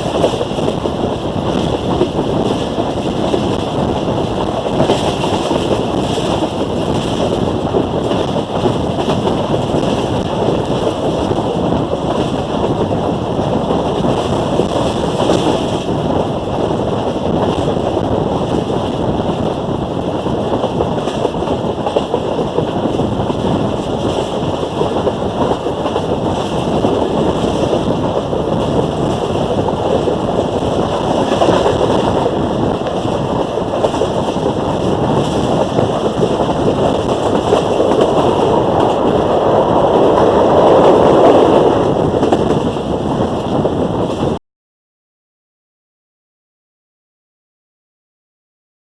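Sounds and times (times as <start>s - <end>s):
train running rumble: 0.0s - 44.4s
wind buffeting microphone: 0.0s - 44.4s.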